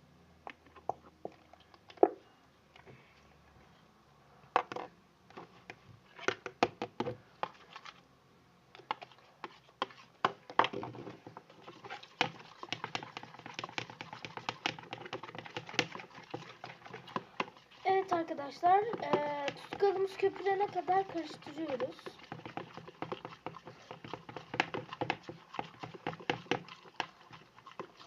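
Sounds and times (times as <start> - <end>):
spoon scraping glue in bowl: 9.0 - 10.4, 11.5 - 28.0.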